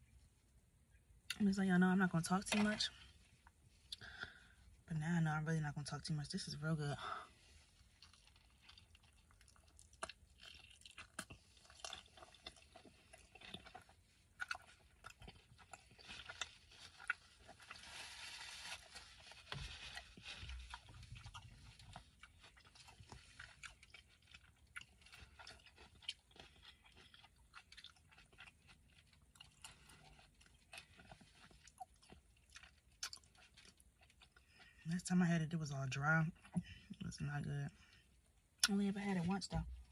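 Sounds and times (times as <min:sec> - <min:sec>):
person chewing food: 0:07.6 - 0:34.8.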